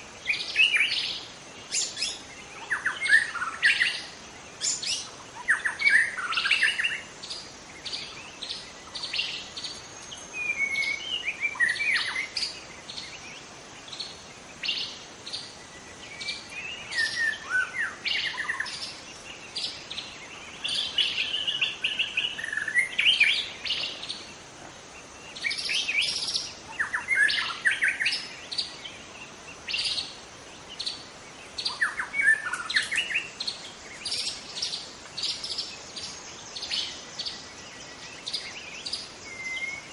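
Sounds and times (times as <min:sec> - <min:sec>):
bird singing whistles: 0:10.3 - 0:12.5, 0:16.1 - 0:18.9, 0:38.2 - 0:39.9.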